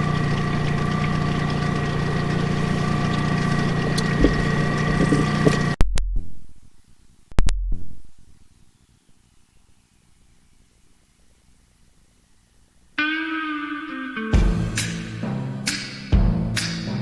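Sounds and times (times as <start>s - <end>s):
engine-like hum with held tones: 0.0s - 5.8s.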